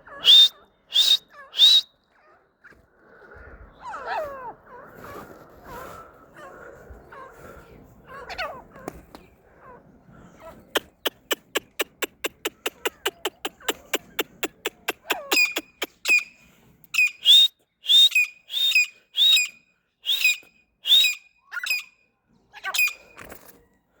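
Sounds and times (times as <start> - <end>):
bird whistled calls: 0.2 - 1.9, 10.8 - 16.3, 17.0 - 21.8
bird clicking calls: 10.8 - 16.2.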